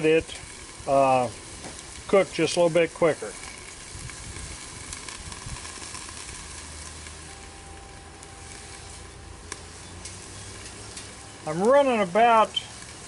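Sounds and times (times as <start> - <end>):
food sizzling on a griddle: 0.0 - 13.0
low hum: 3.4 - 11.7.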